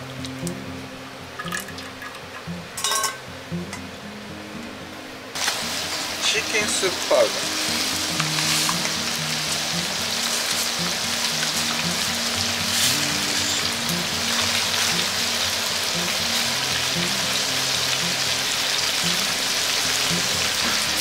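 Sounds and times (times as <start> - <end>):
food sizzling in frying pan: 5.4 - 21.0.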